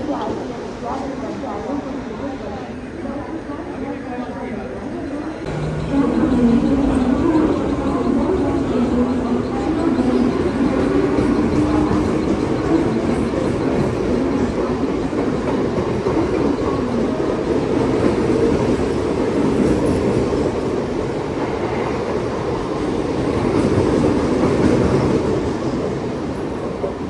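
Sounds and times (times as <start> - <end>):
train wheels rumbling: 5.4 - 27.0.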